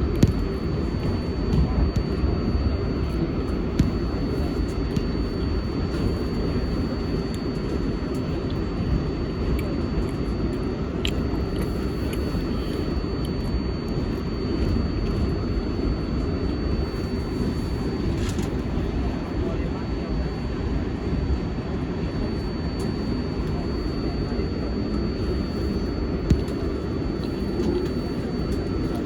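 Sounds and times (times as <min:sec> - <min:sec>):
faint high whine: 0:00.0 - 0:29.0.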